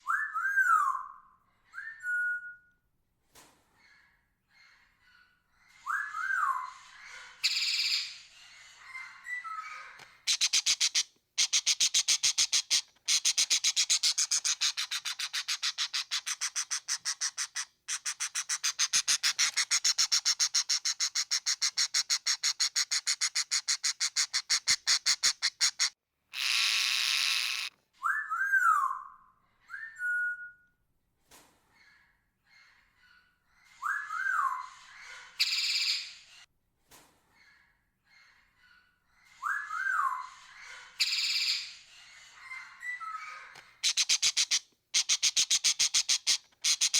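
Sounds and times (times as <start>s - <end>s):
parrot rattle call: 10.3s - 27.7s, 43.8s - 46.9s
parrot screech: 24.3s - 27.7s.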